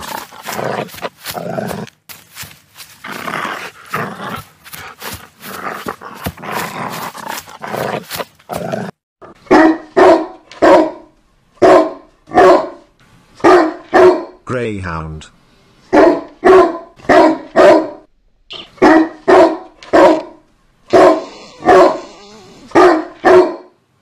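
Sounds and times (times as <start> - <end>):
dog barking loudly: 9.4 - 14.4, 15.9 - 23.8
dog growling: 21.1 - 22.8.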